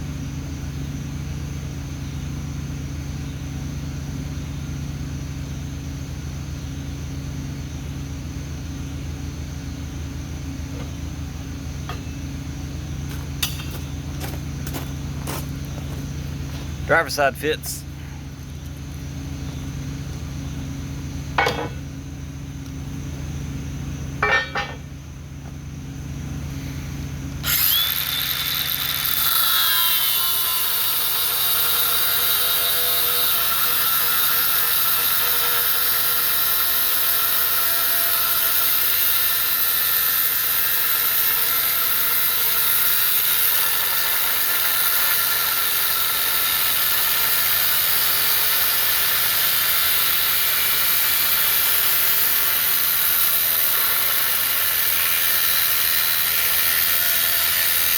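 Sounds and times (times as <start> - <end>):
power tool grinding metal: 13.0 - 17.9, 21.4 - 21.8, 24.2 - 24.9, 27.4 - 57.9
sharp metal knocks: 13.1 - 13.9, 21.4 - 21.9, 24.2 - 24.9.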